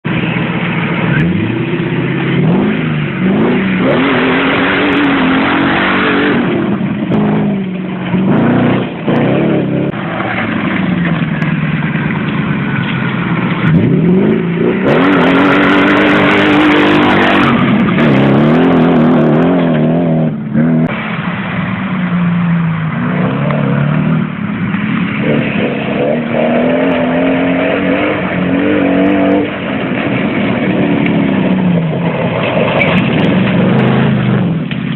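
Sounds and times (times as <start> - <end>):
engine accelerating under load: 0.1 - 21.6.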